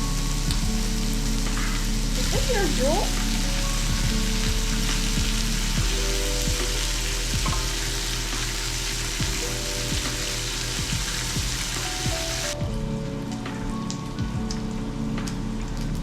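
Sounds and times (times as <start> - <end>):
meat sizzling in a pan: 0.0 - 12.6
light background music: 0.0 - 16.0.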